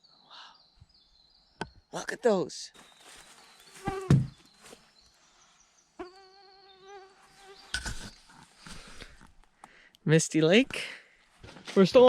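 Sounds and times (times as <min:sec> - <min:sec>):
flying insect buzzing: 0:03.7 - 0:04.4, 0:06.0 - 0:07.8
thump: 0:03.9 - 0:04.4.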